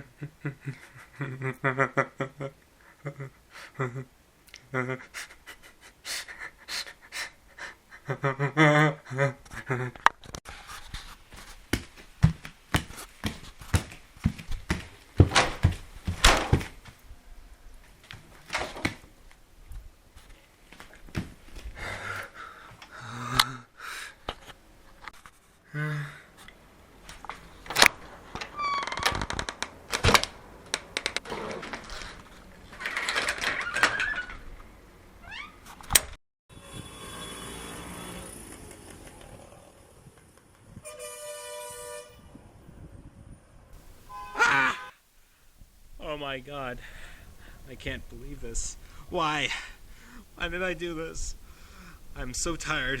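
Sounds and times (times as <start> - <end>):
person breathing: 21.7 - 24.3, 25.6 - 26.5, 46.8 - 47.7, 48.8 - 50.4, 51.4 - 52.2
horn chord: 44.1 - 45.0
steady rumble and hiss: 45.0 - 53.0.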